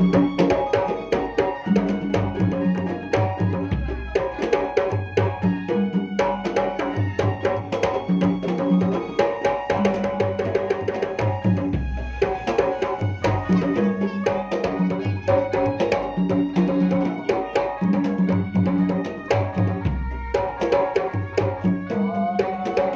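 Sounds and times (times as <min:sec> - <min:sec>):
fast hand drum strokes: 0:00.0 - 0:22.9
held melodic notes: 0:00.0 - 0:22.9.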